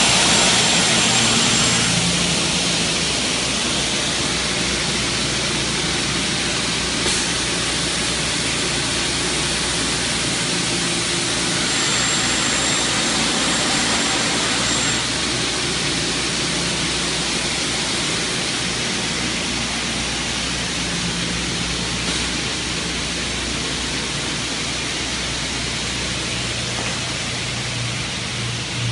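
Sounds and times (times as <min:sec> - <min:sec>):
cutting saw whirring: 0:10.4 - 0:17.8.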